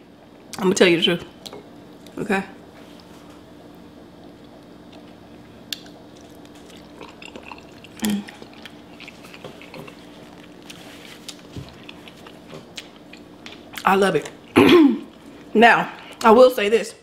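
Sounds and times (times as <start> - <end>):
chewing with wet mouth smacks: 4.2 - 15.3.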